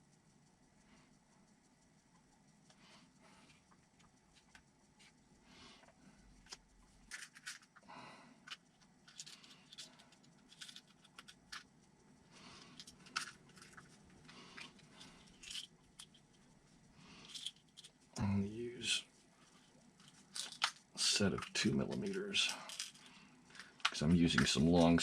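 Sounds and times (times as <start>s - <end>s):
small plastic parts clicking: 5.8s - 7.8s, 8.4s - 11.9s, 12.5s - 16.5s, 17.2s - 18.0s, 19.4s - 25.0s.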